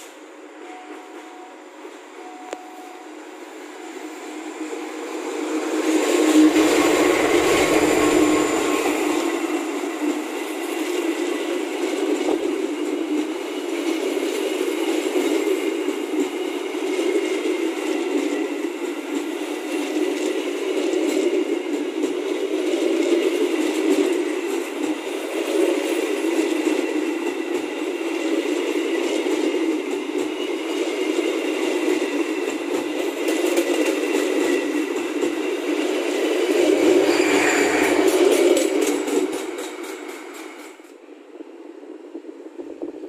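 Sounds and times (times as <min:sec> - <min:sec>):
train wheels rumbling and rattling: 0:00.0 - 0:43.0
thin high tone: 0:36.8 - 0:39.3.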